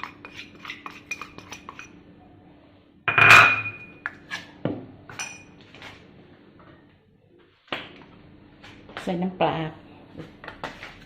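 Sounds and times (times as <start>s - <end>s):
utensils clinking against dishes: 0.0s - 2.0s, 3.1s - 4.5s, 5.1s - 5.6s.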